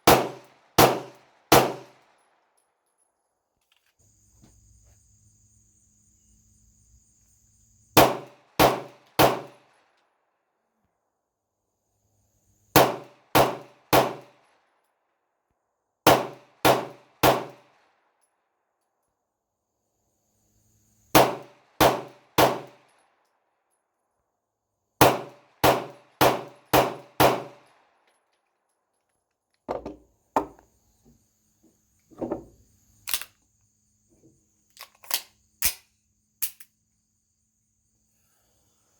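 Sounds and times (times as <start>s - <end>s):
pistol shots: 0.0s - 2.0s, 8.0s - 9.6s, 12.8s - 14.3s, 16.0s - 17.7s, 21.2s - 22.9s, 25.0s - 27.7s.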